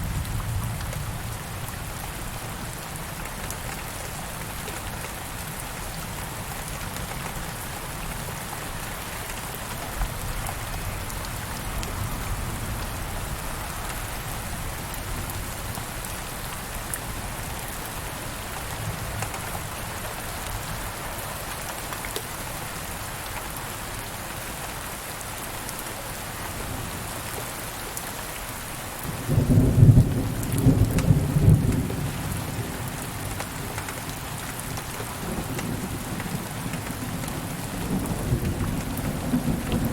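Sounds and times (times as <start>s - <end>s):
steady rain falling: 0.0s - 39.9s
low rumble of thunder: 29.1s - 39.9s.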